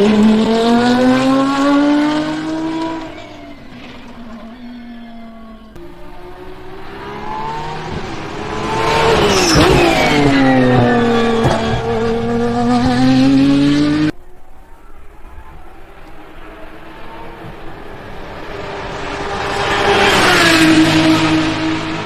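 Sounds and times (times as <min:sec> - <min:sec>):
sports car engine revving: 0:05.1 - 0:14.2.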